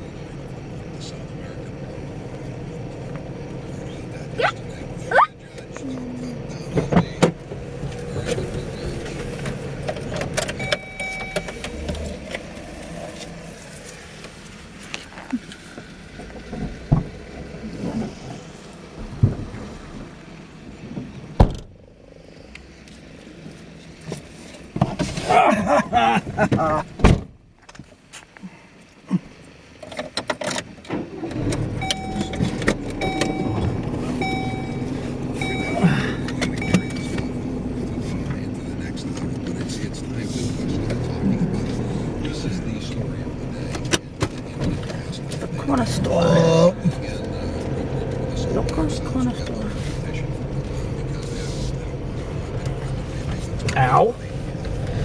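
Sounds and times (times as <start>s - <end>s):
car engine and road noise: 0.0s - 55.0s
vehicle rumble: 0.0s - 55.0s
brief high tone: 10.6s - 11.6s, 31.8s - 37.3s
warning chime: 10.6s - 12.2s, 31.8s - 37.5s.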